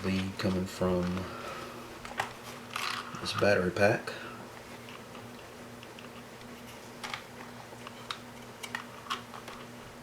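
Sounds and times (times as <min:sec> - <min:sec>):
small parts clicking and tapping: 0:00.0 - 0:01.3, 0:02.0 - 0:03.5, 0:04.8 - 0:09.7
low electrical hum: 0:00.0 - 0:10.0.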